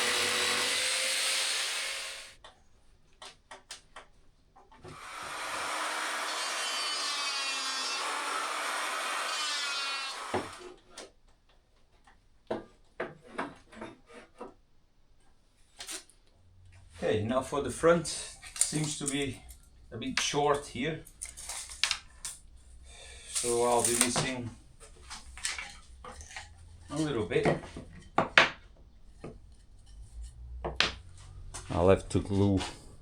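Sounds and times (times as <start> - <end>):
jigsaw cutting plywood: 0.0 - 2.4, 4.9 - 10.7.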